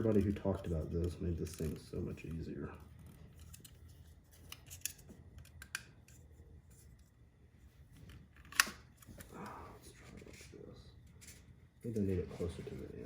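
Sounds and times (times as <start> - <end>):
small clicks of parts: 3.0 - 6.2, 8.0 - 9.3.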